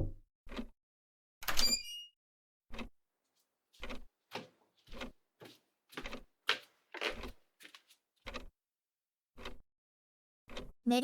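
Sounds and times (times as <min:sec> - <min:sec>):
soft footsteps: 0:03.8 - 0:08.4.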